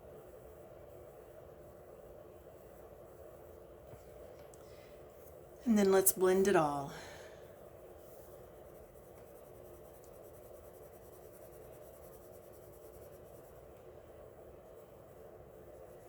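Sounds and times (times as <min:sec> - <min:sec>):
pencil rubbing on paper: 0:08.6 - 0:13.7.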